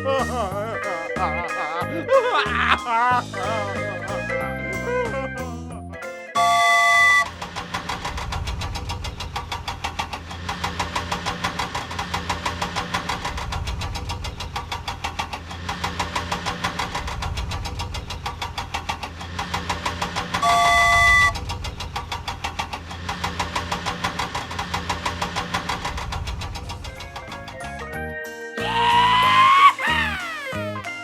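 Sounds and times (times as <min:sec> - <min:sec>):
vehicle engine puttering: 0:00.0 - 0:28.0
horn honking: 0:06.4 - 0:07.4, 0:20.4 - 0:21.5.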